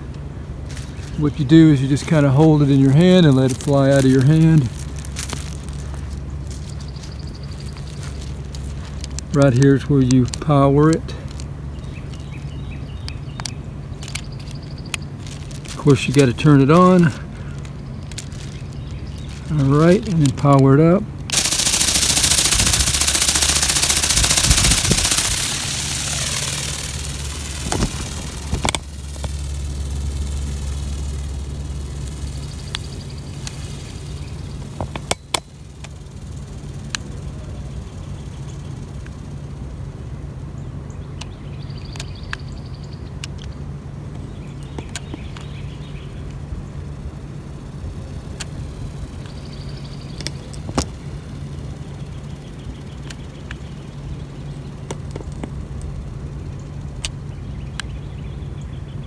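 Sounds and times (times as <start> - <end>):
steady low hum: 0.0 - 41.5, 43.7 - 59.0
toy bird motor and wings whirring: 0.8 - 20.7, 21.3 - 39.8, 44.8 - 57.2
scattered clicks: 21.3 - 37.7.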